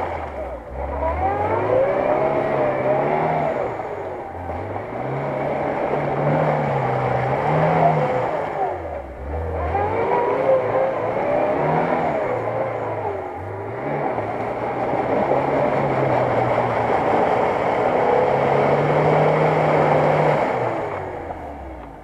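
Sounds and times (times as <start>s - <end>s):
engine revving: 0.0s - 22.0s
wheels churning through mud: 0.0s - 22.0s.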